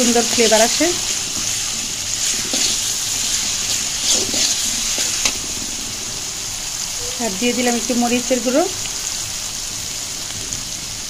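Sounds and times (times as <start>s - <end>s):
onion sizzling in hot oil: 0.0s - 11.0s
metal spatula scraping a pot: 1.0s - 5.4s.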